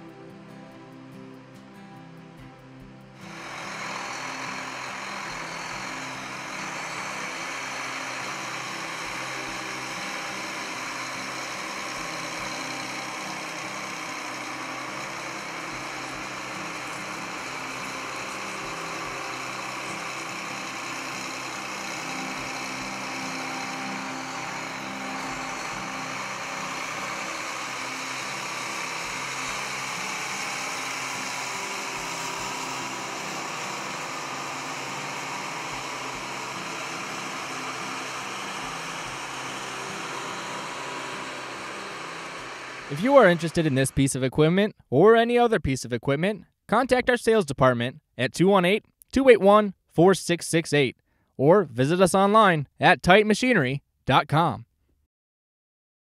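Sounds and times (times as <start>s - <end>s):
tractor diesel engine running: 0.0s - 44.4s.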